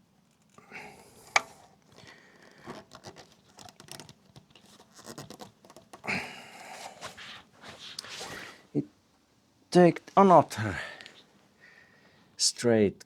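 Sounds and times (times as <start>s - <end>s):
hands working rubber hose: 0.0s - 8.5s.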